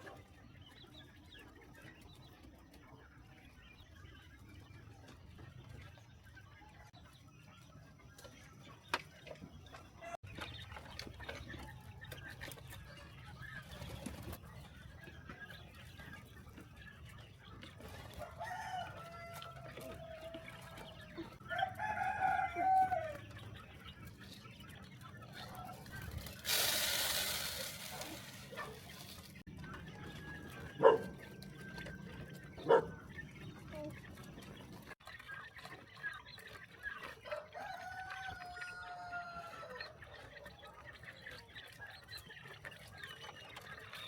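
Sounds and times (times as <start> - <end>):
rooster crowing: 18.2 - 20.7, 21.4 - 23.2, 37.3 - 39.9.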